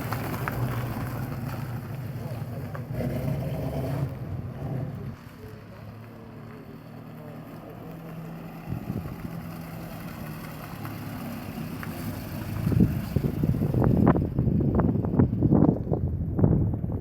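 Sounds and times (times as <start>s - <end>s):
wind gusting on microphone: 8.7s - 9.4s, 12.4s - 17.0s.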